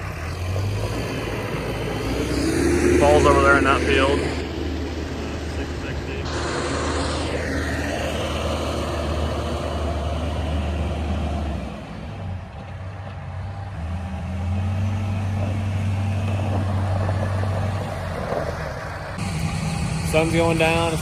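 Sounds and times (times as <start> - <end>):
vehicle engine running: 0.0 - 21.0
short falling whine: 2.8 - 10.0.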